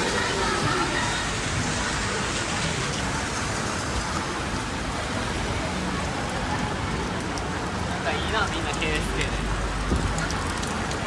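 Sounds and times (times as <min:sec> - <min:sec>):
steady rain hiss: 0:07.3 - 0:11.0.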